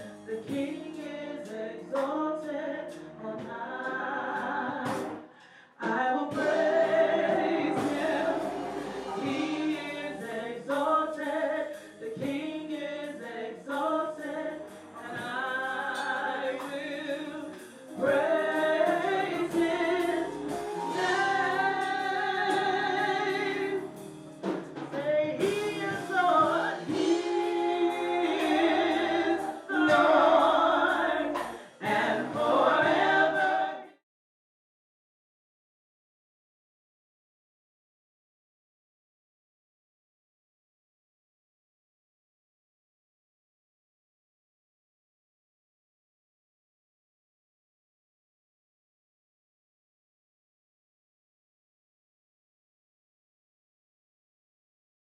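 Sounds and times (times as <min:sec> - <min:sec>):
gospel choir singing: 0:00.0 - 0:34.0.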